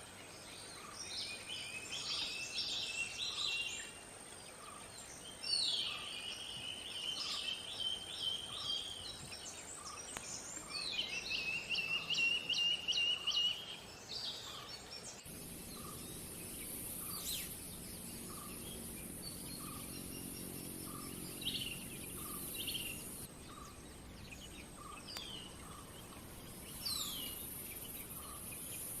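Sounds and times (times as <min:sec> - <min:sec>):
high insect-like hiss: 0:00.0 - 0:29.0
bird calling: 0:09.8 - 0:29.0.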